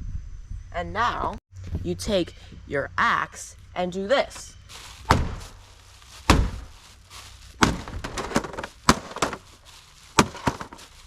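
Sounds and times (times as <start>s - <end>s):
cracking and clattering: 7.6s - 11.0s.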